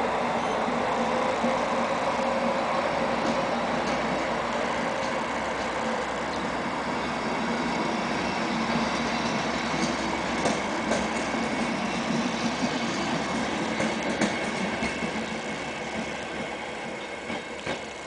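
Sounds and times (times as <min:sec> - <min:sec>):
train coaches rolling past: 0:00.0 - 0:18.0
wheel clicks on rail joints: 0:03.2 - 0:06.5, 0:12.6 - 0:18.0.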